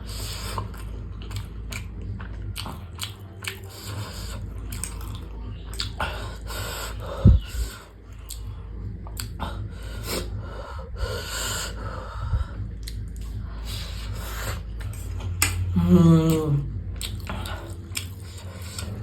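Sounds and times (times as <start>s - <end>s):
man chewing and slurping: 0.0s - 10.5s, 11.5s - 19.0s
man humming: 15.6s - 16.8s.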